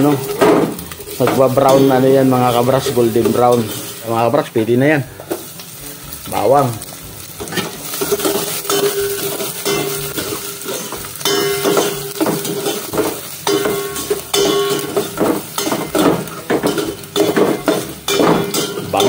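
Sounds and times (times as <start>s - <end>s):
garlic sizzling in hot oil: 0.0s - 19.0s.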